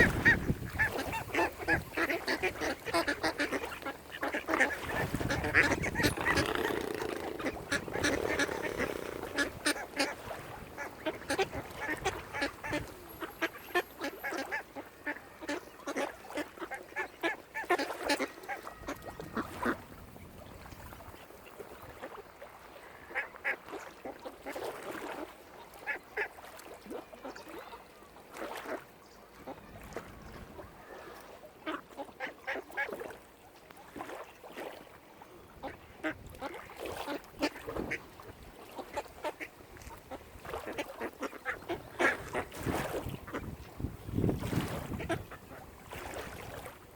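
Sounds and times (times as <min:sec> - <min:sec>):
waterfowl calling: 0:00.0 - 0:19.8.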